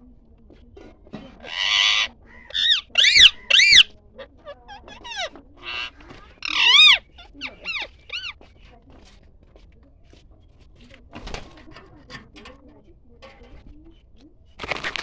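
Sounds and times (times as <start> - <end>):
bird rasping screech: 1.4 - 3.9, 4.8 - 7.0.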